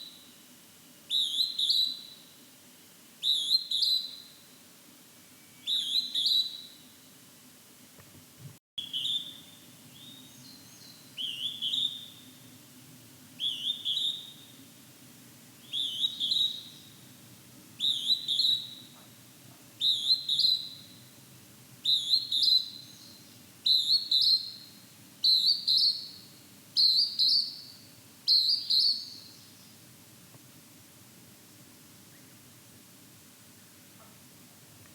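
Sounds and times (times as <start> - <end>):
cuckoo calling in high whistles: 1.1 - 2.2, 3.2 - 4.3, 5.4 - 6.8, 8.8 - 10.2, 11.2 - 12.2, 13.4 - 14.4, 15.6 - 16.9, 17.8 - 19.0, 19.8 - 20.9, 21.8 - 26.2, 26.8 - 27.7, 28.3 - 29.4.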